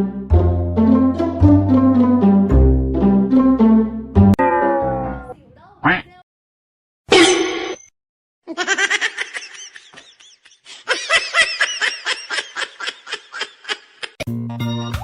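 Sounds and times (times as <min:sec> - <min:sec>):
keyboard music: 0:00.0 - 0:05.2.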